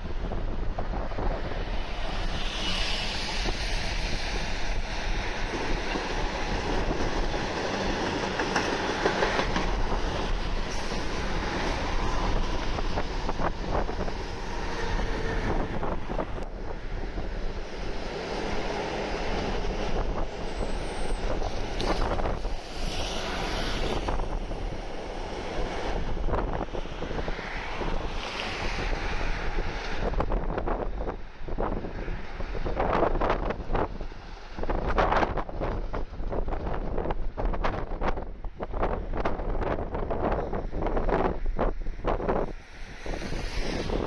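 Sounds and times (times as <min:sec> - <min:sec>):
electric train rumbling past: 0:00.0 - 0:44.0
wheels clicking over rail joints: 0:04.6 - 0:14.7.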